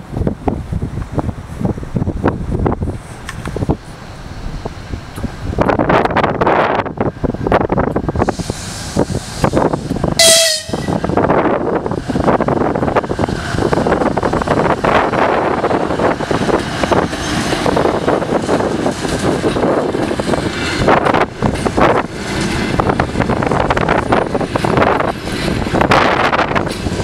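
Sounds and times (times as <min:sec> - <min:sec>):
train wheels rolling on rails: 0:00.0 - 0:27.0
wheels clacking over rail joints: 0:12.1 - 0:27.0.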